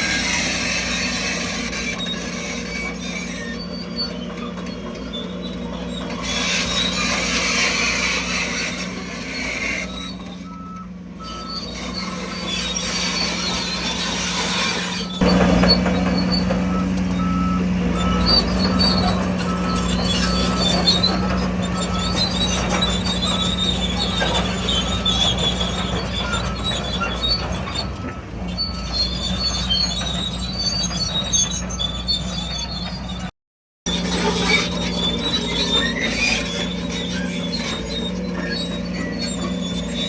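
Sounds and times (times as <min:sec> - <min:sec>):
diesel engine drone: 0:00.0 - 0:33.3, 0:33.9 - 0:40.0
reversing alarm beeping: 0:10.3 - 0:11.8, 0:15.1 - 0:23.6.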